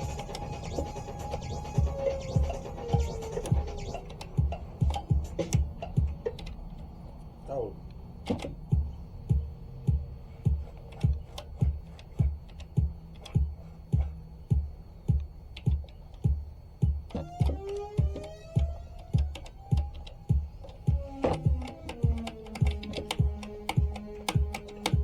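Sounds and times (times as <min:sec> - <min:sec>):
kick drum beat: 0:00.0 - 0:06.5, 0:08.3 - 0:25.0
clicking percussion: 0:00.0 - 0:25.0
gliding synth line: 0:17.1 - 0:24.9.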